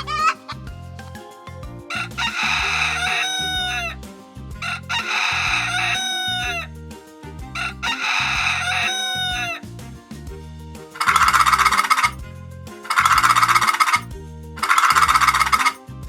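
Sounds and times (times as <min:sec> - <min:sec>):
light background music: 0:00.0 - 0:16.0
rooster crowing: 0:01.9 - 0:04.0, 0:04.6 - 0:06.7, 0:07.6 - 0:09.6, 0:11.0 - 0:12.1, 0:12.9 - 0:14.0, 0:14.6 - 0:15.8.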